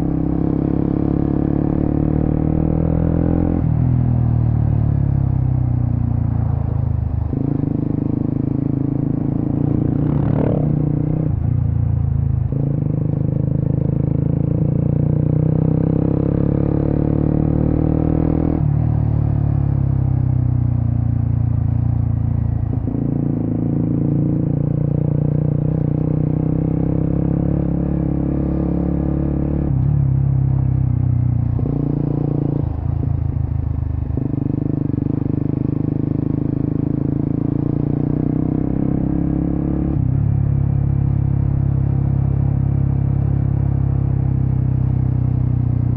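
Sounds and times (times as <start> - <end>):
motorcycle engine revving: 0.0 - 5.3, 7.2 - 11.4, 12.5 - 45.9.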